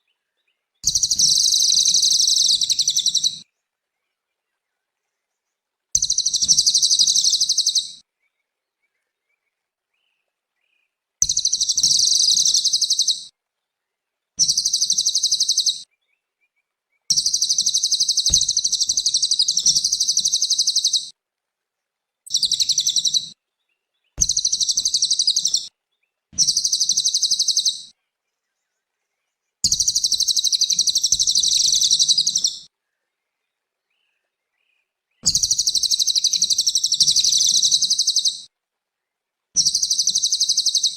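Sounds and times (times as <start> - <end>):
bird singing fast trills: 0.8 - 3.4, 6.0 - 8.0, 11.2 - 13.3, 14.4 - 15.9, 17.1 - 21.1, 22.3 - 23.4, 24.2 - 25.7, 26.4 - 27.9, 29.6 - 32.7, 35.2 - 38.5, 39.6 - 40.9.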